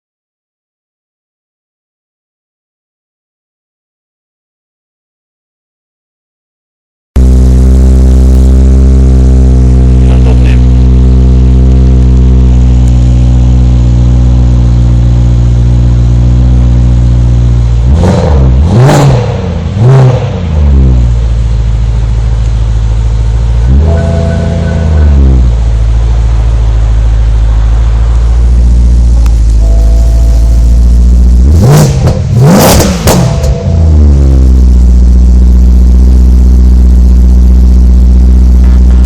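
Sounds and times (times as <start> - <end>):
car engine idling: 7.2 - 39.0
engine revving blips: 17.8 - 21.0, 23.6 - 25.7, 27.5 - 39.0.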